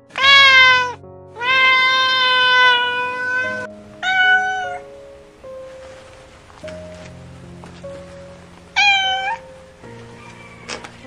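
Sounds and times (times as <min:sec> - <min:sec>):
soft background music: 0:00.0 - 0:11.0
cat meowing: 0:00.1 - 0:04.9, 0:08.8 - 0:09.4.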